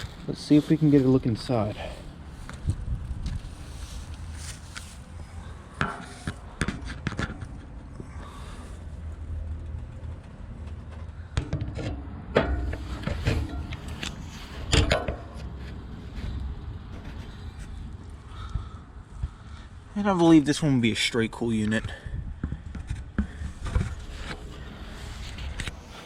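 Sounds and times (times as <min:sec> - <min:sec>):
steady low rumble: 0:00.0 - 0:26.0
close-up scrapes and knocks: 0:11.4 - 0:17.8, 0:22.4 - 0:26.0.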